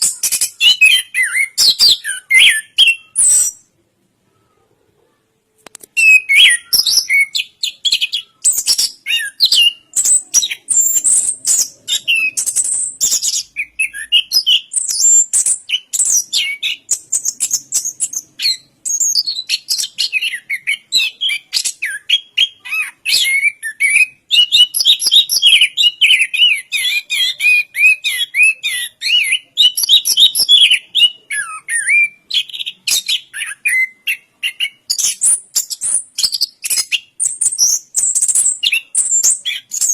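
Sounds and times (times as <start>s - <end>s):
bird singing: 0.0s - 3.7s, 6.0s - 39.9s.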